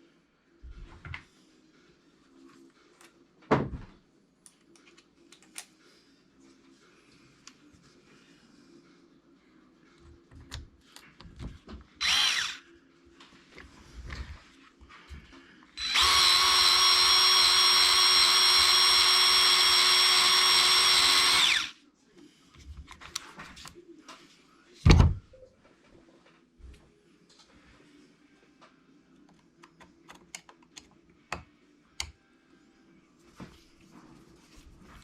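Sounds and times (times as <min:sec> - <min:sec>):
electric drill-driver spinning: 0:12.0 - 0:12.6, 0:15.8 - 0:21.7.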